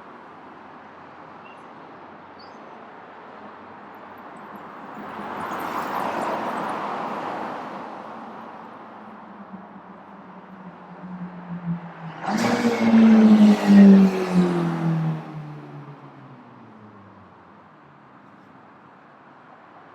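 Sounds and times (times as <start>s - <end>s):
city traffic noise: 0.0s - 19.9s
vehicle passing close by: 11.4s - 16.1s.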